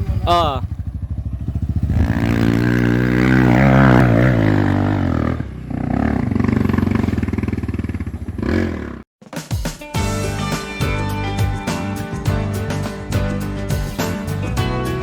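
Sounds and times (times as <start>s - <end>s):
dirt bike engine revving: 0.0s - 9.1s.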